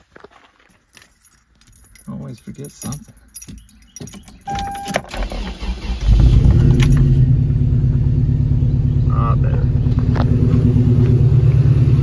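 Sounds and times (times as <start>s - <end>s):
keys jingling: 0.5s - 5.2s
car engine cranking and idling: 1.8s - 12.0s
short beep: 4.5s - 5.1s.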